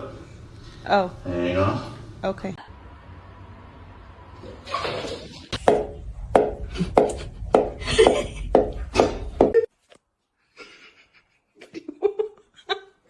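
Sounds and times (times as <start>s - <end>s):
sharp knocks: 5.5s - 9.6s.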